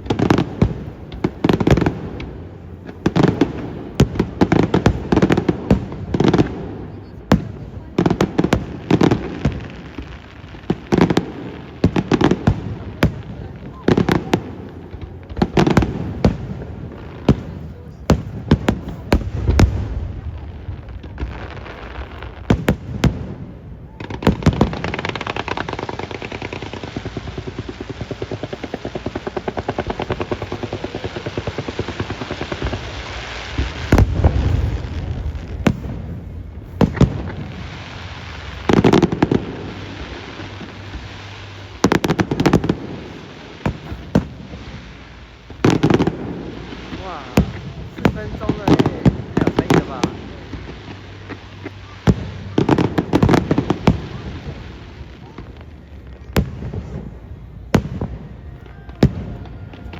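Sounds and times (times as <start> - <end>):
fireworks bangs and booms: 0.0 - 59.9
fireworks crackling: 0.0 - 59.9.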